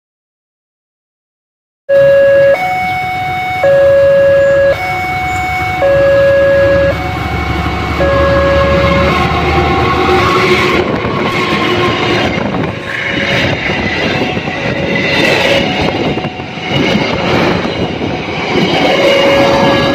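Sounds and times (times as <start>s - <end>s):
passenger train passing: 1.9s - 19.9s.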